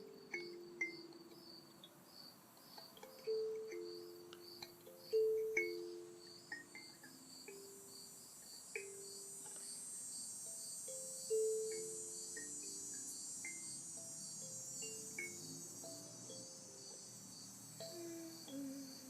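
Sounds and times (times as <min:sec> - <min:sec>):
night insects chirping: 0:00.0 - 0:19.0
steady high buzz: 0:02.9 - 0:19.0
soft melodic chime notes: 0:03.0 - 0:08.0.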